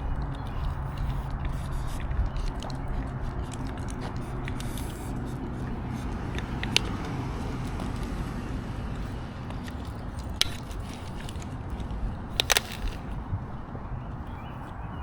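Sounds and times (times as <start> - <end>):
sharp clicks: 0.0 - 13.2
low rumble: 0.0 - 14.6.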